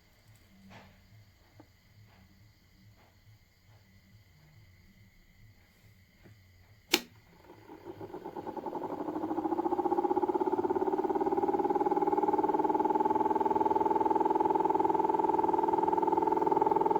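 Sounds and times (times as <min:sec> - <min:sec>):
switch clicking: 0:06.9 - 0:07.2
small electric motor humming: 0:06.9 - 0:16.9.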